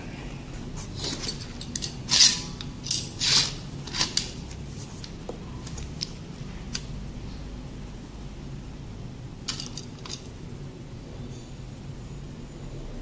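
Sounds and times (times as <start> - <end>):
metal parts scraping and clinking: 1.0 - 6.1, 9.4 - 10.4.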